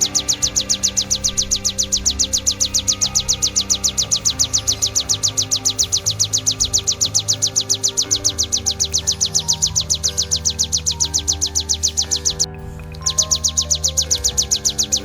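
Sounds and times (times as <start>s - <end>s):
bird singing high chirps: 0.0s - 15.0s
soft music of low sustained notes: 0.0s - 15.0s.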